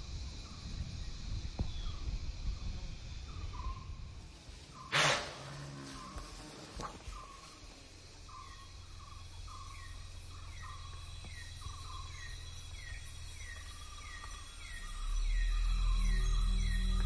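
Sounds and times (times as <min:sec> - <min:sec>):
high insect drone: 0:00.0 - 0:17.0
low rumble: 0:08.2 - 0:17.0.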